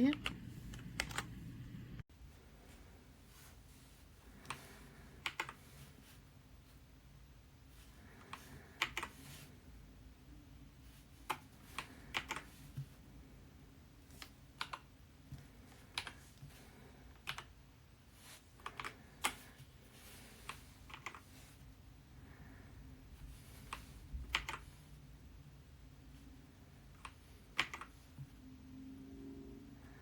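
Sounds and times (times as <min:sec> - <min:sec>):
mechanical keyboard keystrokes: 0:00.1 - 0:01.3, 0:23.7 - 0:24.7, 0:27.0 - 0:27.9.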